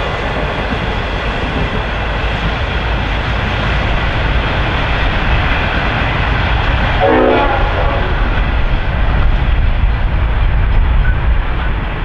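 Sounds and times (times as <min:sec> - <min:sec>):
train rumbling: 0:00.0 - 0:12.0
train horn blast: 0:07.0 - 0:08.5.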